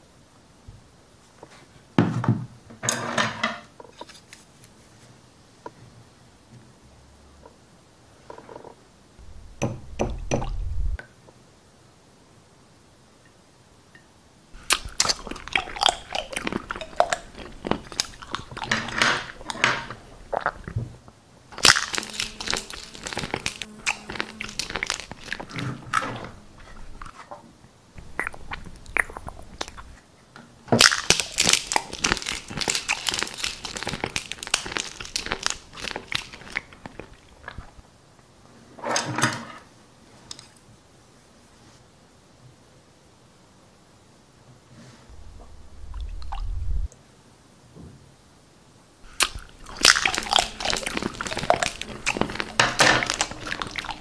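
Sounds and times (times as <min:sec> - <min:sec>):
crunching and chewing: 0:14.6 - 0:20.8, 0:21.5 - 0:27.3, 0:28.0 - 0:30.0, 0:30.8 - 0:37.8, 0:49.1 - 0:54.0.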